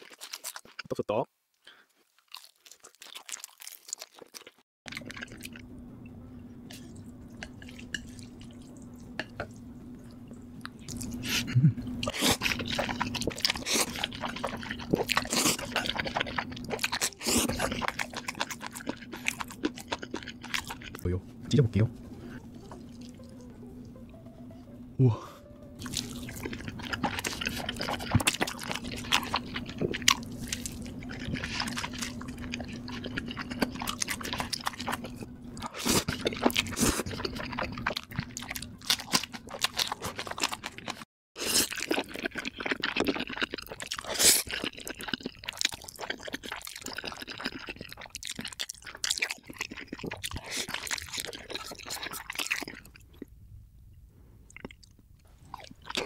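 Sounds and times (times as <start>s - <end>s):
biting and chewing bread: 0.0s - 1.0s, 1.9s - 5.5s, 10.9s - 21.1s, 25.8s - 53.3s, 54.5s - 56.0s
wet chewing smacks and crunches: 0.0s - 1.0s, 2.0s - 5.6s, 12.0s - 21.1s, 25.8s - 53.3s, 54.5s - 56.0s.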